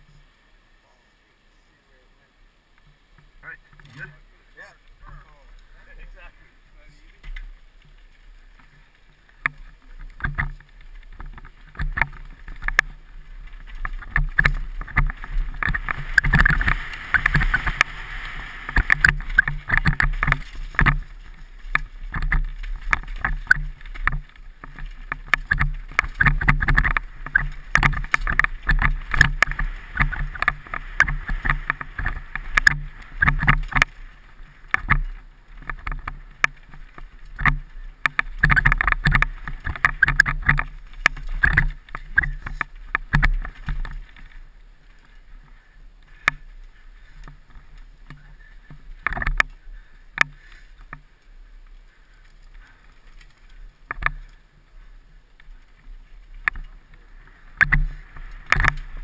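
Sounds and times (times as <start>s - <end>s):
camera knocking and rattling: 9.4s - 44.4s, 47.2s - 49.5s, 53.3s - 54.4s, 57.6s - 59.0s.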